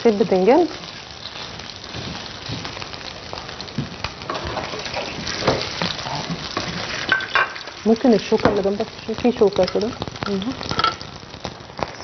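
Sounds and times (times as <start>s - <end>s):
meatballs sizzling in a pan: 0.0s - 12.0s.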